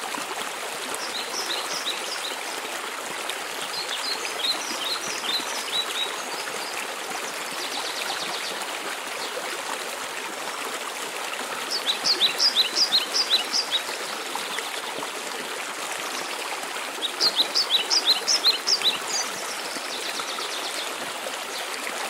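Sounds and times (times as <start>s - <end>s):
bird chirping and trilling: 17.1s - 19.5s.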